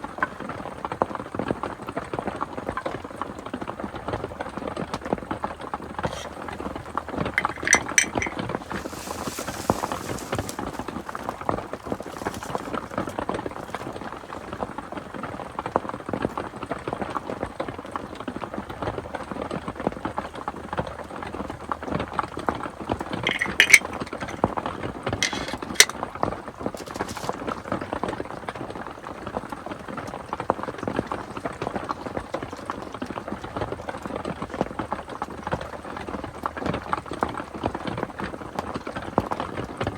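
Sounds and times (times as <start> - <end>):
light clinks: 7.4 - 13.1, 23.2 - 24.4, 25.2 - 25.9.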